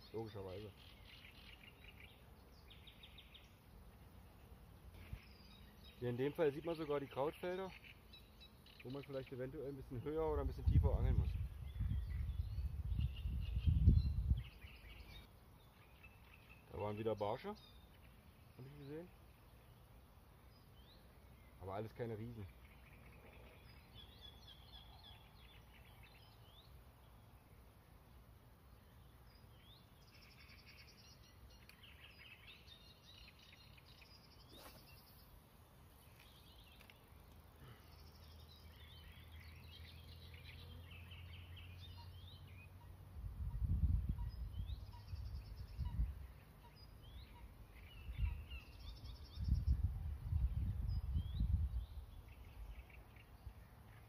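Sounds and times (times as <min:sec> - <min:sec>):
songbirds chirping and trilling: 0:00.0 - 0:54.0
low rumble on microphone: 0:10.4 - 0:15.2, 0:49.3 - 0:52.6.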